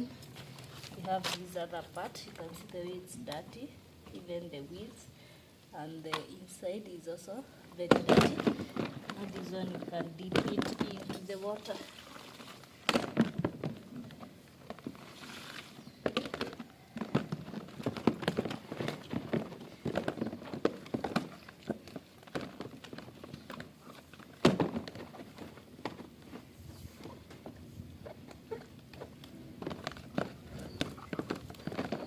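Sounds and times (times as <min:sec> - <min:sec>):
water splashing: 0:11.6 - 0:12.9
plastic part knocking and clattering: 0:16.0 - 0:23.7.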